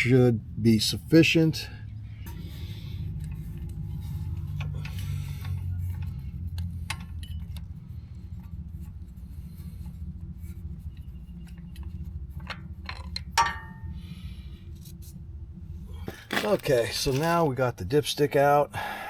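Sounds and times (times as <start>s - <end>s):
metal tools clicking and clinking: 16.1s - 17.4s.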